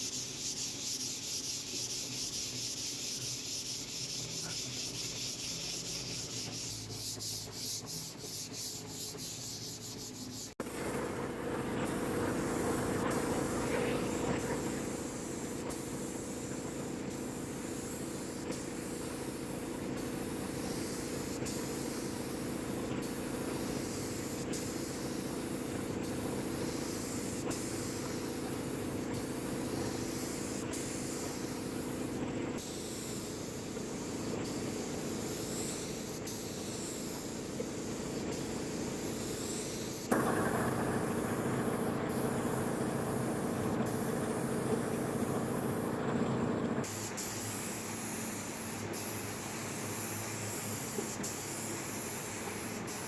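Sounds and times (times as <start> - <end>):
hand sanding wood: 0.0 - 10.6.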